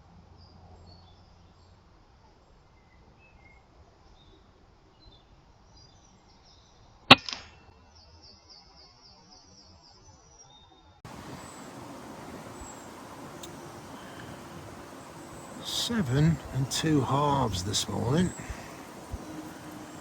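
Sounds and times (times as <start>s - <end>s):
faint bird chirps: 11.1s - 20.0s
steady hiss: 11.1s - 20.0s.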